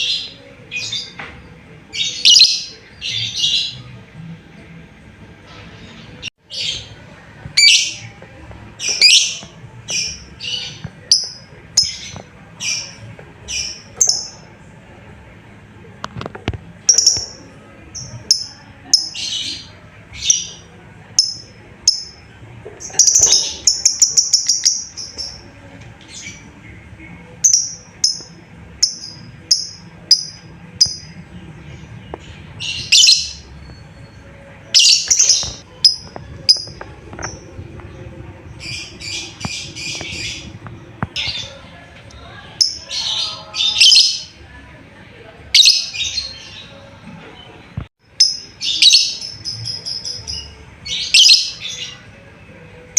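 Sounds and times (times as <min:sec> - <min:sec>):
lovebird chirping: 0:32.5 - 0:37.9.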